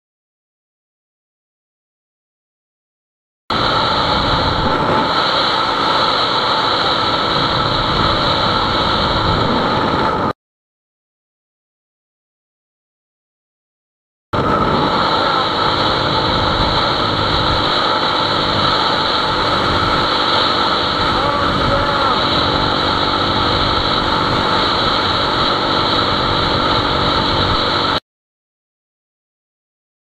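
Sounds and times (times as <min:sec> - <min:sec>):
vehicle engine and road noise: 0:03.5 - 0:10.3, 0:14.4 - 0:28.0.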